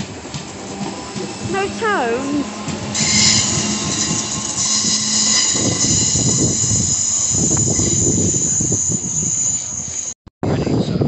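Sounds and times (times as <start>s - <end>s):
low train rumble: 0.0s - 10.2s
train wheels squealing: 2.9s - 10.2s.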